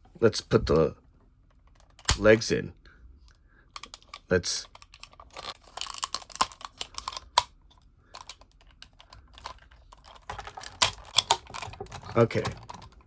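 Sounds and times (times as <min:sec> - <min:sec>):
plastic toy parts clicking: 0:01.6 - 0:02.2, 0:03.8 - 0:13.0.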